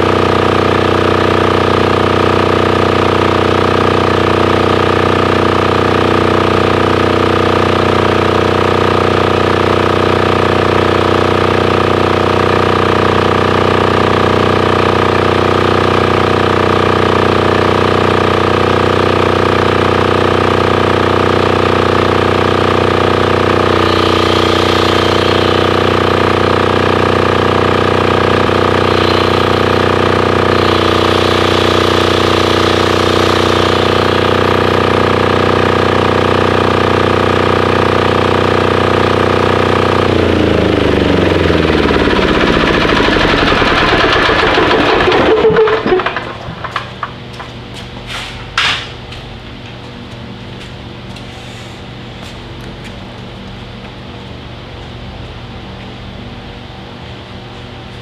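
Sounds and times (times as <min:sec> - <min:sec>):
diesel generator running: 0:00.0 - 0:58.0.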